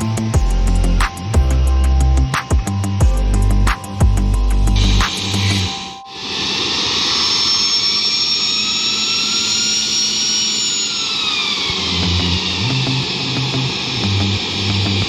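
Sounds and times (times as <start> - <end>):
jet engines whining: 0.0 - 15.0.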